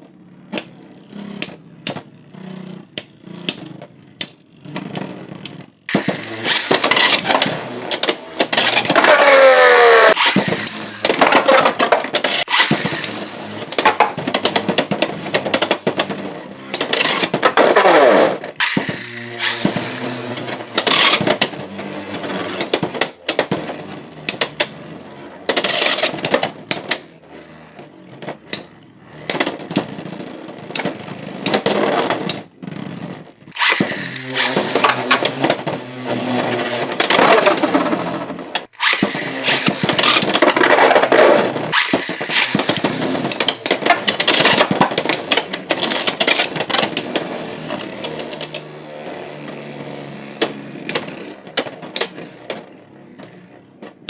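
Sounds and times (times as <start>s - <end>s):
spinning tops whirring: 0.6s - 22.8s, 33.5s - 52.5s
tops clacking and rattling: 2.8s - 24.8s, 33.5s - 48.7s.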